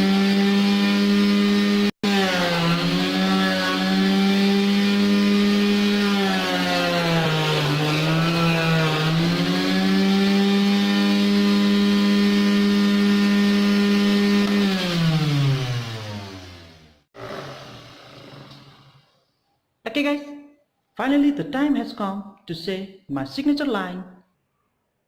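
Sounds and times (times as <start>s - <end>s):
electric motor whine: 0.0s - 17.8s.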